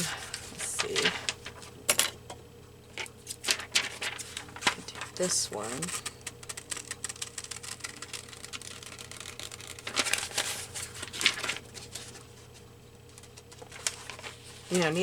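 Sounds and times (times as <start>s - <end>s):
paper rustling: 0.0s - 1.8s, 3.0s - 15.0s
scissors snipping paper: 3.5s - 12.2s.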